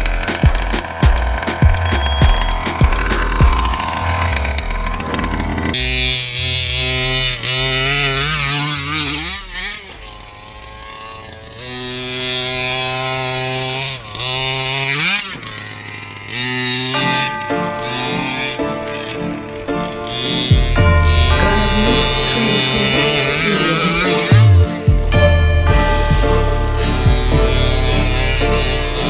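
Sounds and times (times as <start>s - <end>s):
background music: 0.0s - 5.7s, 16.8s - 29.0s
small two-stroke engine running: 0.0s - 29.0s.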